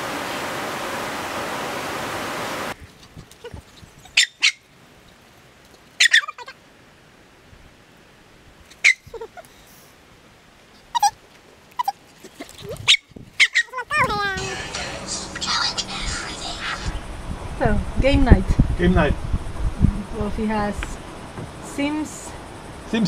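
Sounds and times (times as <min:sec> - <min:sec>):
waterfall rushing: 0:00.0 - 0:02.8, 0:14.2 - 0:17.0
high-pitched animal calls: 0:06.0 - 0:06.6, 0:08.8 - 0:09.5, 0:10.8 - 0:17.0.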